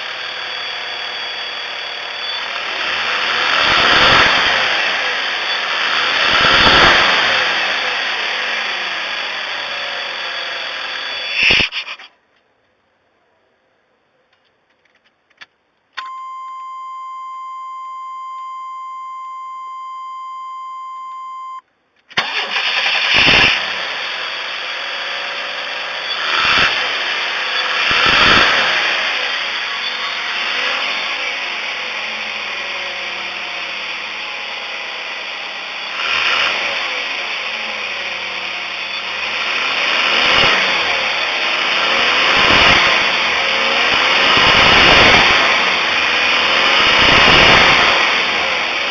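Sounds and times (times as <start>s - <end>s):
engine cranking and revving: 0.0s - 12.1s, 22.1s - 48.9s
electronic warning tone: 16.0s - 21.6s.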